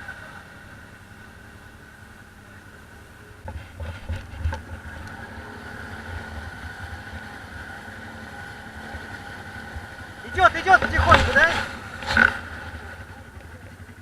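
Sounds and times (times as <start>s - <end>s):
engine running with whine: 0.0s - 14.0s.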